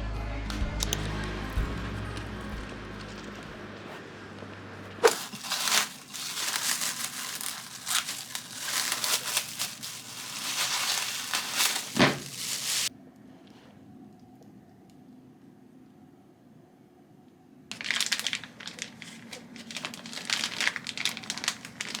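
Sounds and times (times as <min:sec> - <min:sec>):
crinkling and crackling: 0:02.1 - 0:12.9, 0:17.7 - 0:22.0.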